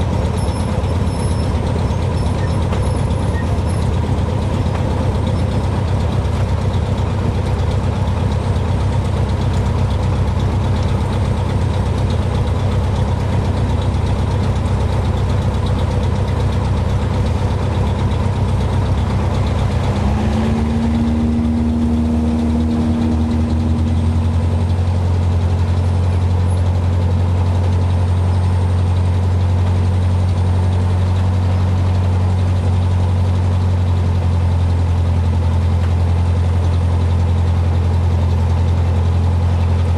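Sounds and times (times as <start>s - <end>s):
aircraft piston engine running: 0.0s - 39.9s.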